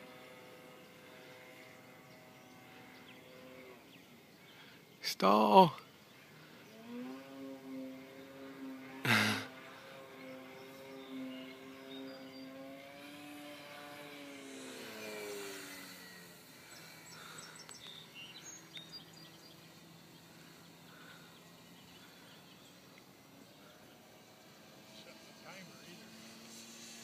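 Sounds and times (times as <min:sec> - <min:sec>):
birds chirping: 0:00.0 - 0:27.0
model airplane motor buzzing: 0:00.0 - 0:27.0.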